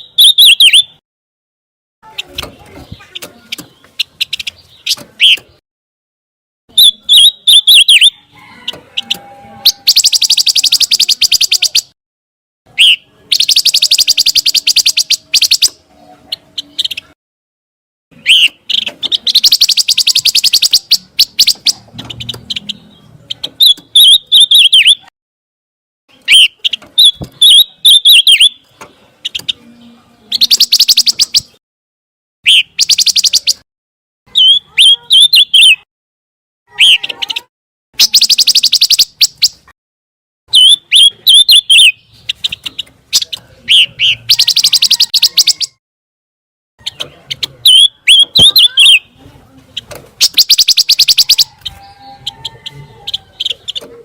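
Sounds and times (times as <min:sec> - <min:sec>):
songbird trills and chirps: 0:00.0 - 0:01.0, 0:06.7 - 0:12.0, 0:12.7 - 0:17.2, 0:18.2 - 0:25.1, 0:26.1 - 0:31.6, 0:32.5 - 0:33.6, 0:34.3 - 0:35.8, 0:36.7 - 0:39.7, 0:40.5 - 0:45.8, 0:46.8 - 0:53.9.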